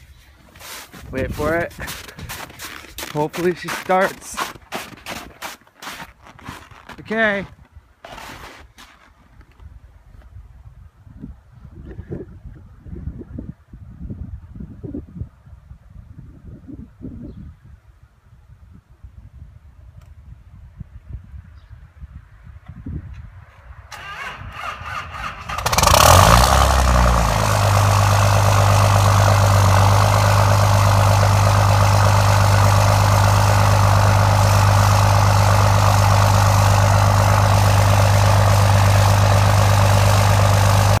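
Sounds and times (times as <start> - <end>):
diesel engine starting and idling: 23.9 - 41.0
starter motor cranking: 24.0 - 41.0.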